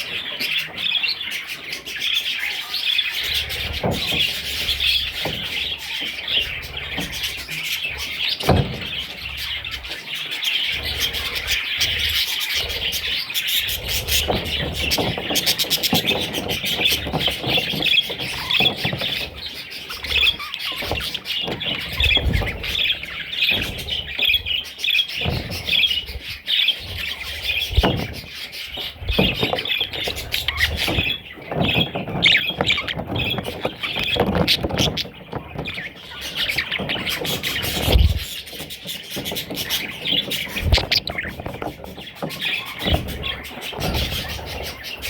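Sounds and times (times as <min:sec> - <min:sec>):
budgie chicks chirping: 0:00.0 - 0:45.0
low knocks and bumps: 0:03.3 - 0:10.0, 0:10.8 - 0:45.0.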